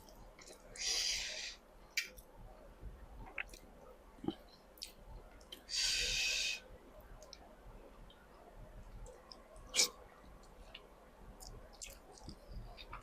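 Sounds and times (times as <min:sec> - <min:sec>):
mouth clicks: 0:09.3 - 0:10.0
person chewing: 0:11.4 - 0:13.0.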